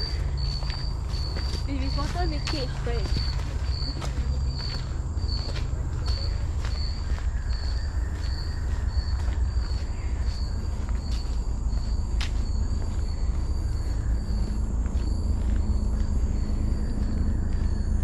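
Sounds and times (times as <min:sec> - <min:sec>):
insect chirping: 0:00.0 - 0:18.0.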